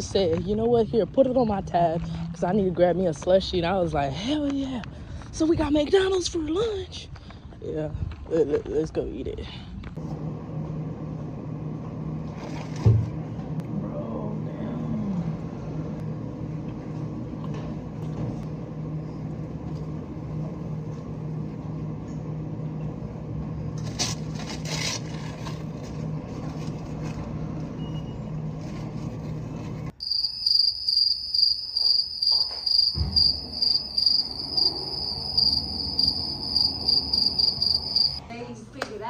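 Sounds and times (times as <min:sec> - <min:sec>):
crickets chirping: 0:30.0 - 0:38.2
car interior hum: 0:31.2 - 0:38.2.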